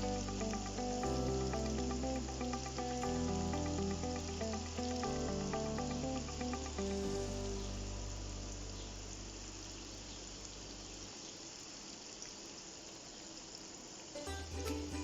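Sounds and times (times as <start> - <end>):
wings sizzling in hot oil: 0.0 - 8.1
low background music note: 0.0 - 10.8, 14.2 - 15.0.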